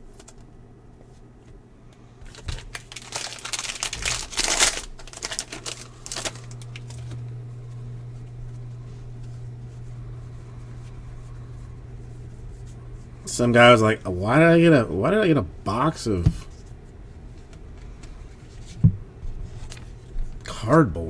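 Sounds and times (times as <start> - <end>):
steady low hum: 0.0 - 21.0
foil wrapper tearing and crinkling: 2.2 - 7.2.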